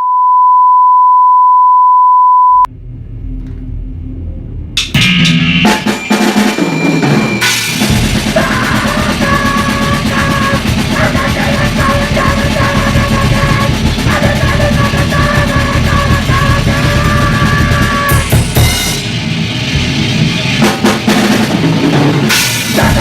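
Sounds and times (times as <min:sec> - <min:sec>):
loud rock music: 0:04.8 - 0:23.0.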